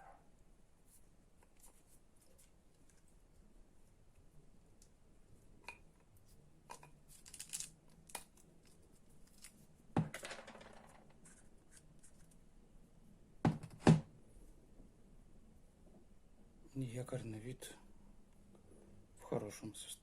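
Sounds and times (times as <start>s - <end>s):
clicks and scraping of parts: 6.7s - 9.6s.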